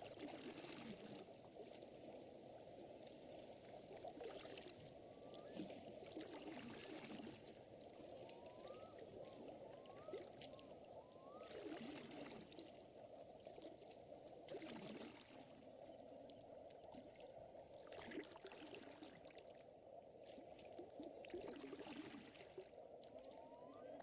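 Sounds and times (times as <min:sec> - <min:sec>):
soft crackles: 0:00.0 - 0:24.0
lake water lapping: 0:03.2 - 0:12.8
short rising whistles: 0:08.3 - 0:11.8, 0:23.3 - 0:24.0.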